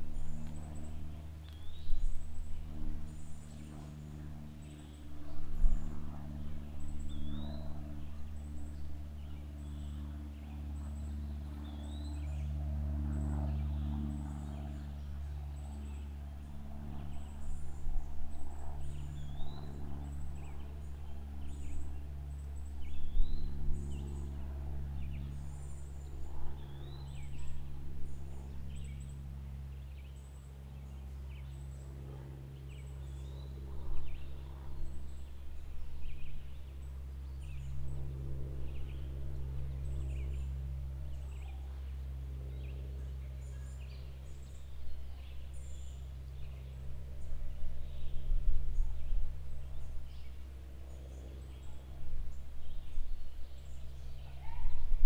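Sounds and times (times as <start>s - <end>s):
steady low hum: 0.0s - 55.0s
birds chirping: 18.7s - 55.0s.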